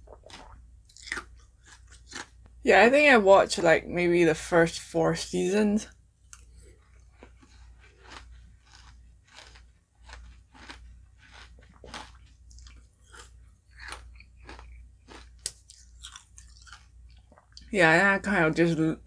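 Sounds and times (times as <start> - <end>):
chewing with crunches: 0.0 - 2.4, 6.3 - 17.7.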